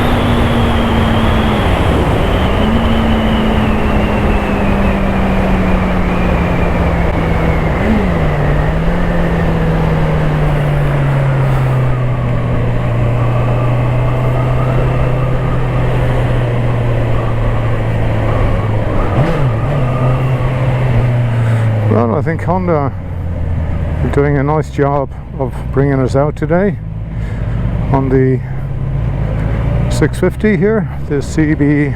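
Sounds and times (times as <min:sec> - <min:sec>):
steady rushing noise: 0:00.0 - 0:25.1
motorcycle engine running: 0:00.0 - 0:31.9.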